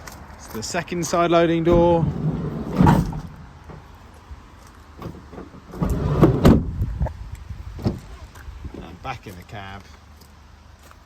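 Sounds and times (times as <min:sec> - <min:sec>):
van door slamming: 0:01.6 - 0:04.0, 0:05.0 - 0:06.8
van sliding door clunk: 0:01.6 - 0:04.0, 0:05.0 - 0:06.8.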